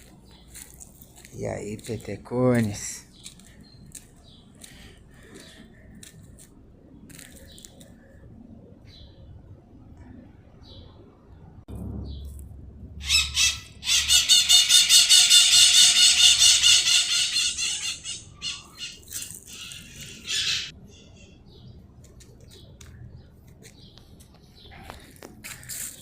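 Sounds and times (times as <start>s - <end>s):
bird squawking harshly: 13.0s - 20.7s.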